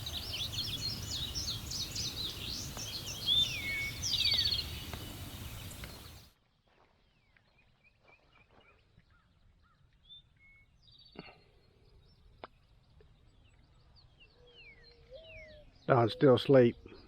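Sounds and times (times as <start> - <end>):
faint bird chirps: 0.0 - 6.3, 7.2 - 17.0
outdoor hiss: 0.0 - 6.3.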